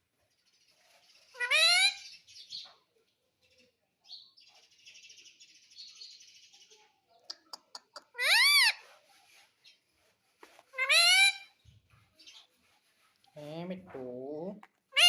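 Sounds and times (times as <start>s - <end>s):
parrot calling: 1.3s - 2.1s, 7.7s - 8.8s, 10.7s - 11.6s
parrot chattering: 7.3s - 8.8s, 10.7s - 11.5s.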